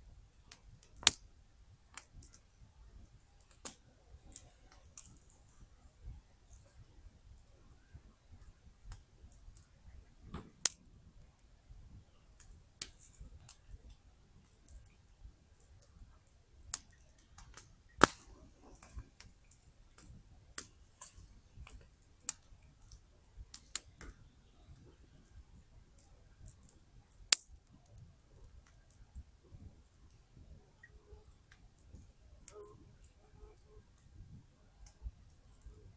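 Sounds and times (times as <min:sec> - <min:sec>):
campfire crackling: 0:00.0 - 0:35.9
burning wood snapping: 0:00.5 - 0:01.2, 0:03.4 - 0:05.2, 0:10.3 - 0:10.8, 0:16.7 - 0:24.3, 0:26.0 - 0:27.8.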